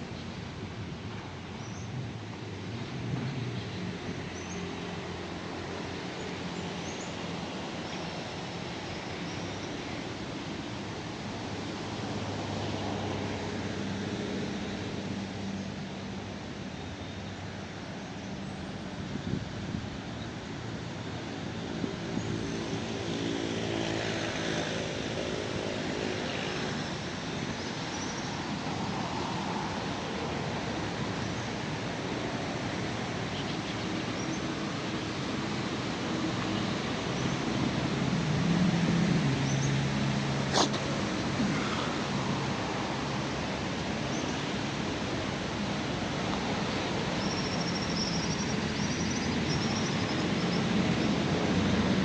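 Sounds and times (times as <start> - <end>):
engine passing by: 22.4 - 33.2, 35.3 - 47.2.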